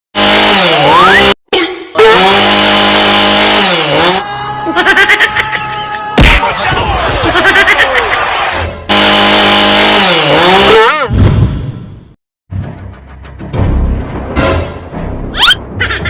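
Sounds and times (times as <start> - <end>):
chainsaw engine revving: 0.2 - 1.4, 2.0 - 4.2, 8.9 - 10.8.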